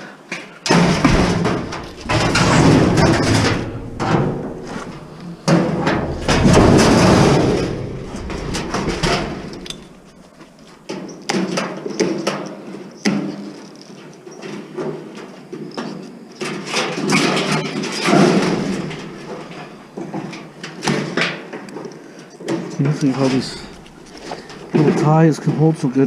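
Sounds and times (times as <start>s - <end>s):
sharp knocks: 0.7s - 10.2s
metal parts clattering and scraping: 0.7s - 10.8s, 23.1s - 24.7s.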